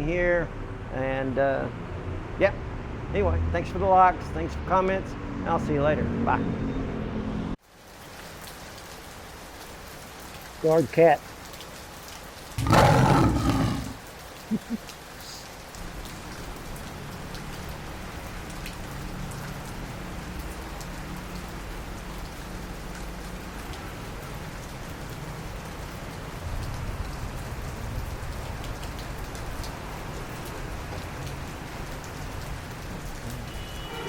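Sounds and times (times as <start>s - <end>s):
steady rain falling: 7.6s - 34.0s.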